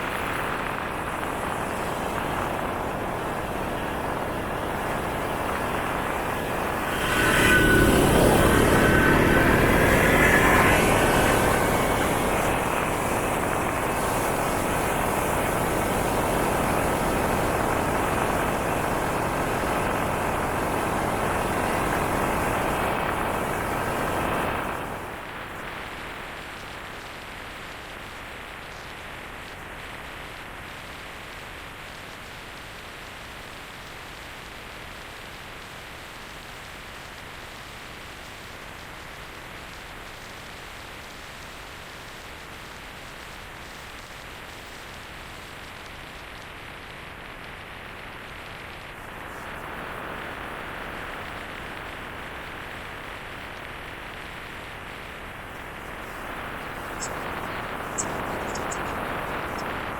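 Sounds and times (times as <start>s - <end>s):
wind rushing over microphone: 0.0s - 25.7s, 54.1s - 59.9s
motorcycle engine drone: 0.0s - 25.9s, 54.3s - 59.9s.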